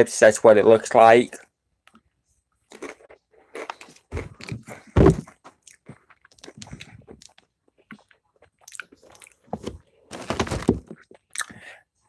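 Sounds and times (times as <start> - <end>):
person chewing crunchy chips: 2.7 - 9.5.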